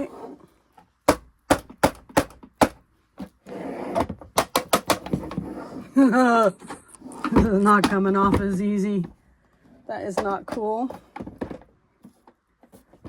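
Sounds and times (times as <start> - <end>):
clicks and knocks of hard parts: 4.0 - 5.4.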